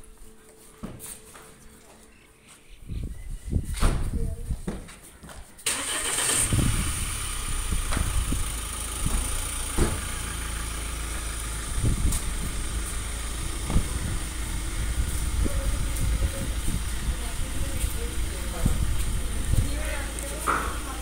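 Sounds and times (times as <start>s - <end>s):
diesel engine idling: 5.6s - 21.0s.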